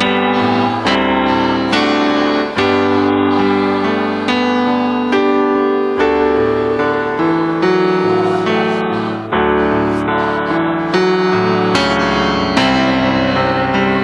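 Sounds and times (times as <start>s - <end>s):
keyboard playing sustained chords: 0.0s - 14.0s.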